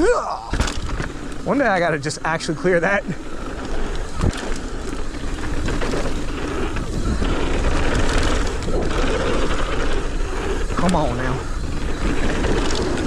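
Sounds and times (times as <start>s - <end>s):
bike rolling on dirt trail: 0.0s - 13.0s
bike knocks and rattles: 0.4s - 10.1s.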